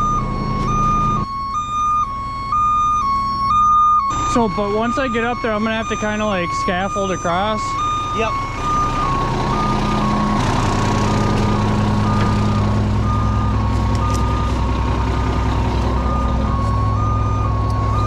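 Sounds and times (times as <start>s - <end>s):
truck diesel engine running: 0.0s - 18.0s
two-tone warning alarm: 0.0s - 18.0s.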